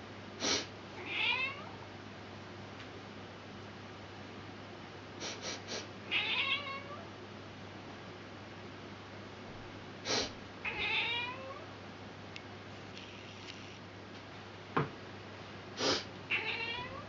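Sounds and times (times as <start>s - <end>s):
cat hissing: 0.4s - 1.6s, 5.2s - 7.0s, 10.0s - 11.4s, 15.8s - 16.9s
cat meowing: 1.0s - 1.8s, 6.1s - 7.0s, 10.6s - 11.6s, 16.3s - 17.0s.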